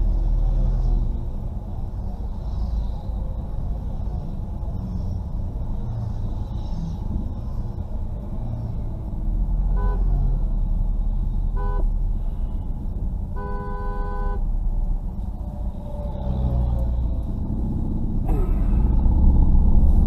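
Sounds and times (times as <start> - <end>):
traffic engines rumbling: 0.0 - 20.0
vehicle horn toots: 13.4 - 14.4.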